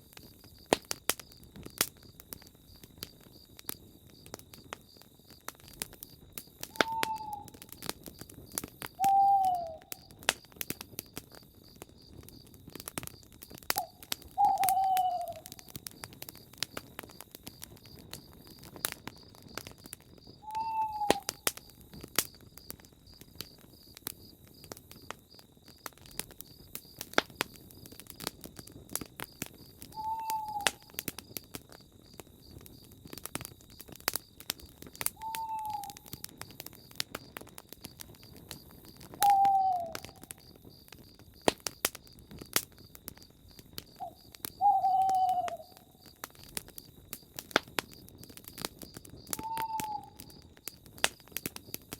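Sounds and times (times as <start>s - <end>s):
wood fire crackling: 0.0s - 51.9s
owl hooting: 6.7s - 7.6s, 9.0s - 10.1s, 13.8s - 15.6s, 20.4s - 21.4s, 30.0s - 30.9s, 35.2s - 36.2s, 39.2s - 40.3s, 44.0s - 46.0s, 49.4s - 50.2s.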